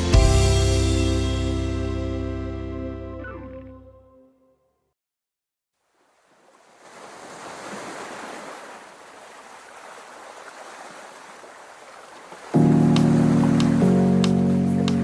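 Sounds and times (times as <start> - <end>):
music: 0.0 - 4.6, 12.6 - 15.0.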